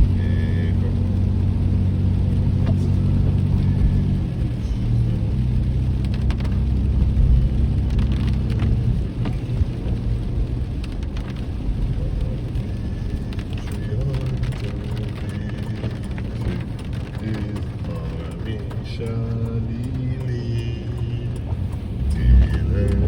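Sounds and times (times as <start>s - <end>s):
hymn playing from car audio: 0.0s - 5.4s, 11.8s - 23.0s
rain on a moving car: 0.0s - 23.0s
road noise inside a car: 0.0s - 23.0s.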